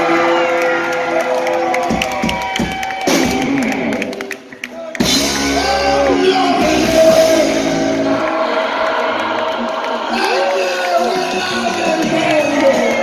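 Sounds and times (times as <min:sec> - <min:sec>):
loud rock music with singing: 0:04.9 - 0:13.0.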